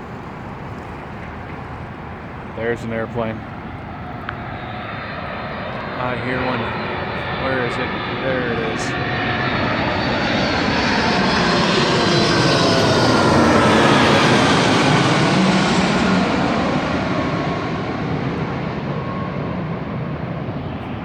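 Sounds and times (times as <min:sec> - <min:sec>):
airplane flying past: 0:00.0 - 0:21.0.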